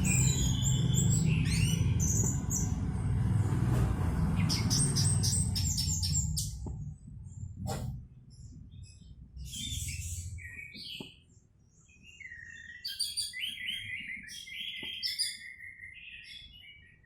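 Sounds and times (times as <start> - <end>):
low steady rumble: 0.0 - 10.6.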